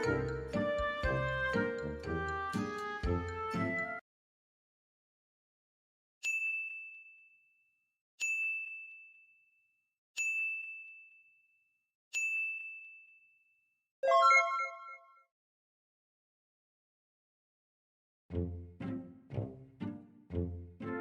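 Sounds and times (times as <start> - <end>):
bell-like dings: 6.2 - 7.5, 8.2 - 9.5, 10.2 - 15.2
bright multi-note chime: 14.0 - 15.0.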